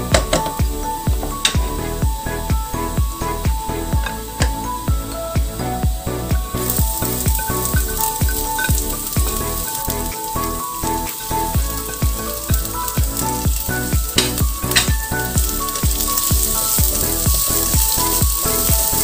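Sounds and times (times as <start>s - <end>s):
background music with a beat: 0.0s - 19.0s
vegetables sizzling in a wok: 6.5s - 19.0s.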